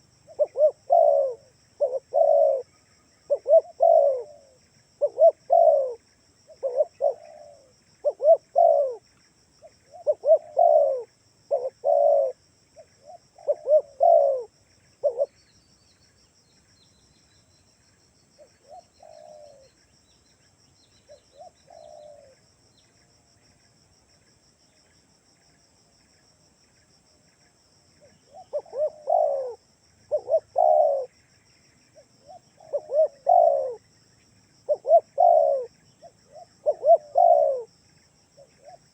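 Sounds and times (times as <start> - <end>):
dove cooing: 0.0 - 9.0, 9.6 - 15.4, 18.4 - 19.8, 21.1 - 22.4, 28.0 - 31.2, 31.9 - 33.8, 34.7 - 37.7, 38.4 - 38.9.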